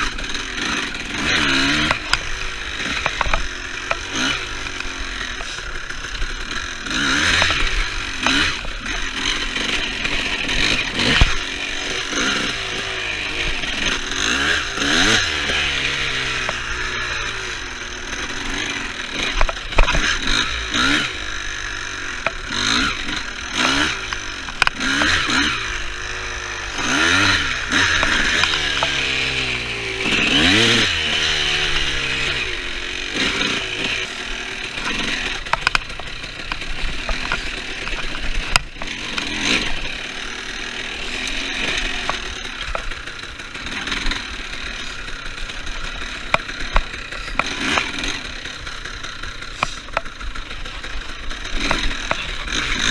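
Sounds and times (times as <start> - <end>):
clatter: 0.0 - 52.9
dirt bike engine revving: 0.0 - 52.9.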